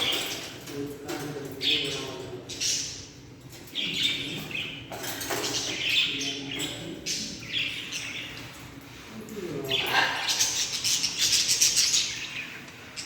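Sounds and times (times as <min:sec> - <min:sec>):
parrots calling: 0:09.6 - 0:13.0.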